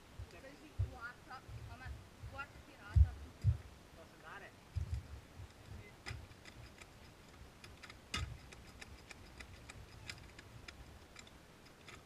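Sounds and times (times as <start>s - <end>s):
faint clicks and light knocks: 4.7s - 12.0s.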